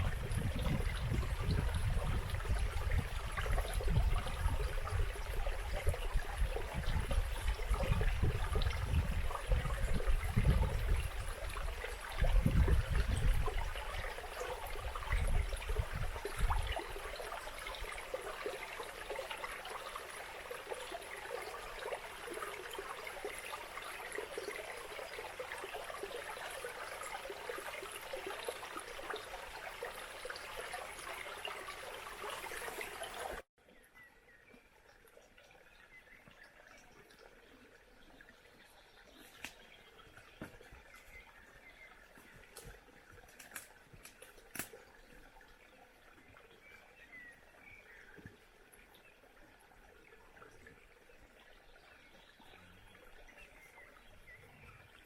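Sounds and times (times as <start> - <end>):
wind buffeting microphone: 0.0 - 14.1, 14.7 - 16.8
stream flowing: 0.0 - 55.0.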